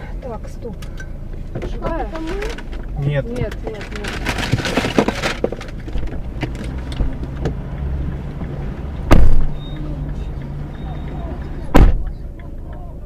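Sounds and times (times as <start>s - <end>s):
car engine and road noise: 0.0s - 13.0s
loud thump: 9.0s - 9.6s, 11.7s - 12.1s.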